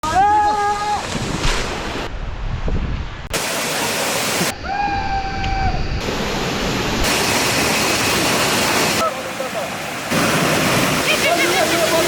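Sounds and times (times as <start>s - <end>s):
waterfall rushing: 3.3s - 12.0s.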